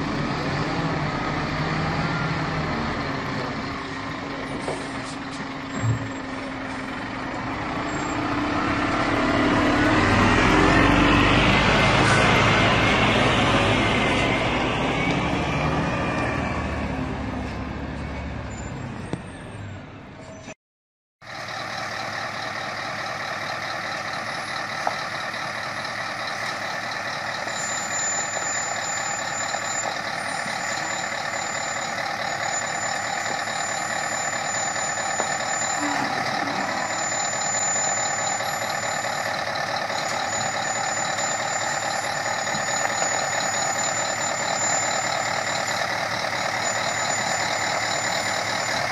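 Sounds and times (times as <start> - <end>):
heavy truck engine running: 0.0 - 19.7, 21.2 - 48.9
heavy vehicle high whine: 0.0 - 20.6, 21.2 - 48.9.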